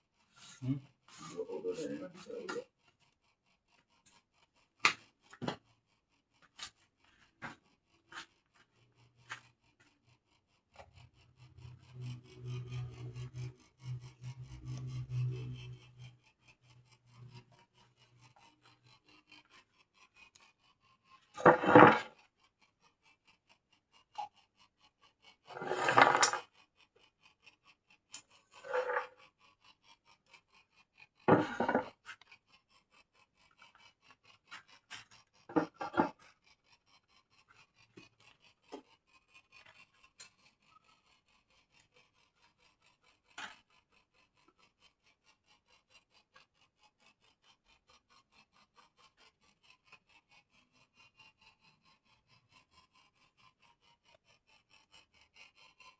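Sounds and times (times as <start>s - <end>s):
abrasive rubbing strokes: 0.4s - 2.6s, 10.8s - 18.3s.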